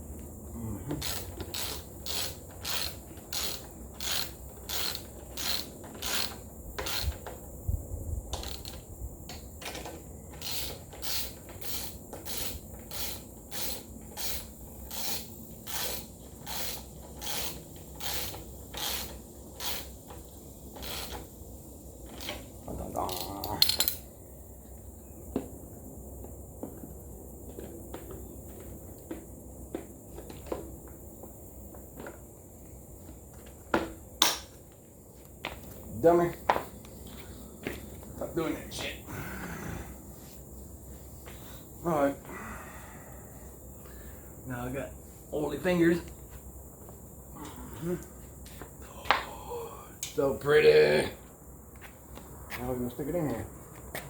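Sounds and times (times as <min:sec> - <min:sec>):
ratchet rasping burst: 0:01.0 - 0:07.3, 0:08.3 - 0:08.8, 0:09.6 - 0:21.3
socket ratchet clicking: 0:01.0 - 0:07.3, 0:08.4 - 0:20.0.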